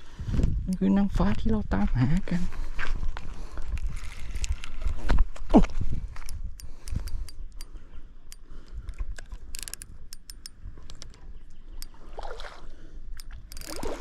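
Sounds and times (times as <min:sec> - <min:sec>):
fishing reel clicking: 0:06.3 - 0:07.7, 0:08.3 - 0:11.2, 0:13.2 - 0:14.0.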